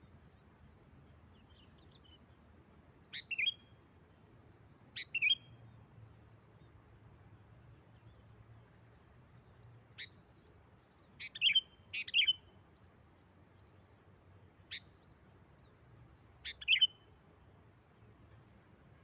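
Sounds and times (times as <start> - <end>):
bird chirping: 3.1 - 3.7, 4.8 - 5.6, 9.6 - 17.1.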